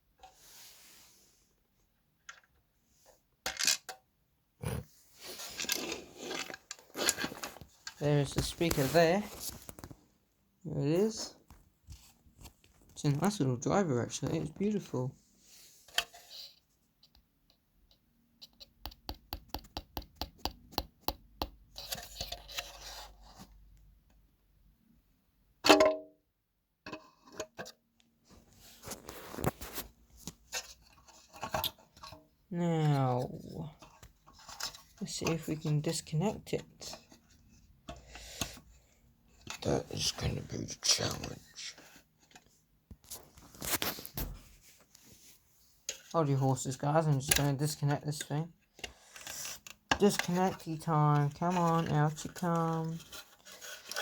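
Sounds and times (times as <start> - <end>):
clattering and rustling: 5.2 - 10.0
rustling and light clattering: 5.2 - 10.2, 41.2 - 46.2.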